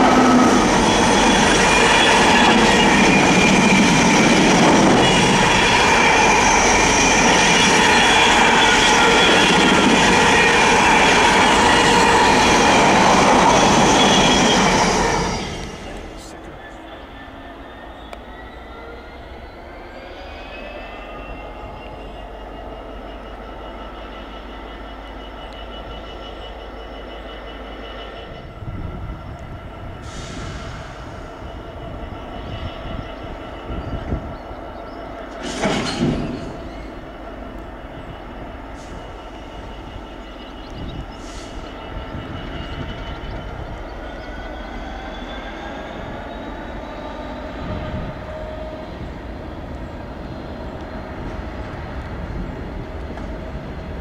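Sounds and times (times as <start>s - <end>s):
diesel locomotive engine droning: 0.0s - 54.0s
wagons clanking over rail joints: 35.3s - 37.0s.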